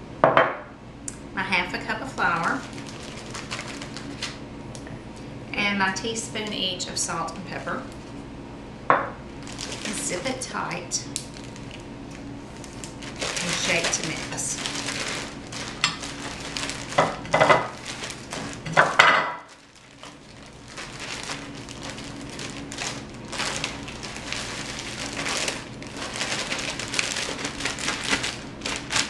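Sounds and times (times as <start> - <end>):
plastic bag shaken crinkling: 2.4 - 4.4, 9.4 - 10.2, 11.3 - 29.0.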